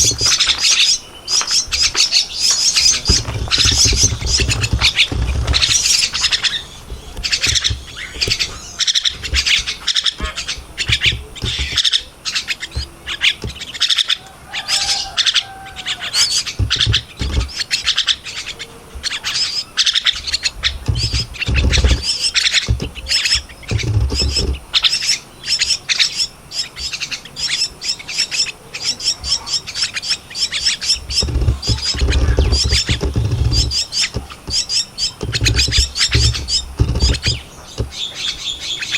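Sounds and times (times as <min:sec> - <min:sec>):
low thumps: 0:00.0 - 0:13.8, 0:16.2 - 0:17.8, 0:20.1 - 0:24.7, 0:30.8 - 0:38.1
chicks harsh begging chirps: 0:00.0 - 0:38.9.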